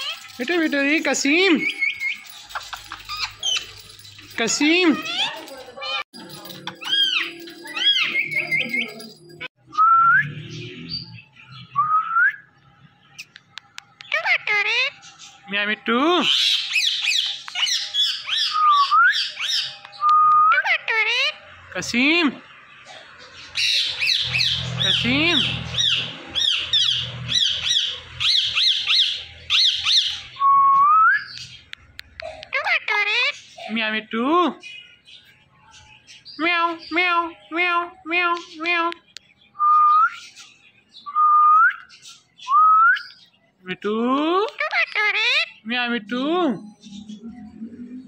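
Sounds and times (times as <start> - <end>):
parrot squawking and chirping: 0.0 - 9.5, 13.1 - 30.4, 31.2 - 39.2, 44.4 - 48.0
parakeet chirping: 14.0 - 19.9, 20.5 - 30.4.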